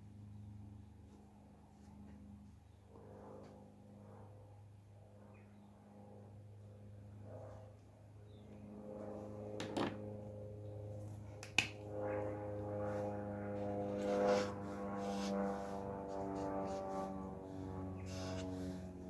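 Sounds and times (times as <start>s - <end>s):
low steady hum: 7.7s - 19.0s.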